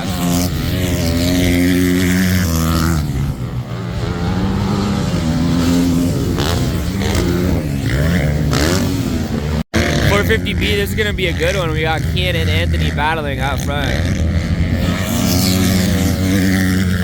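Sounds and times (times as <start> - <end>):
motocross bike engines revving: 0.0 - 17.0.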